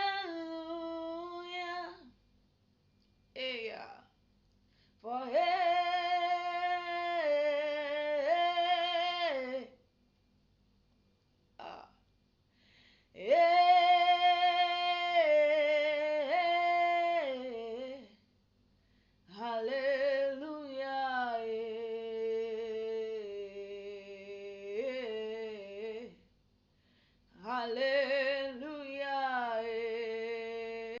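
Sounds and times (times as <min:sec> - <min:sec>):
person singing unaccompanied: 0:00.0 - 0:02.1, 0:05.0 - 0:09.8, 0:13.2 - 0:18.1, 0:27.4 - 0:31.0.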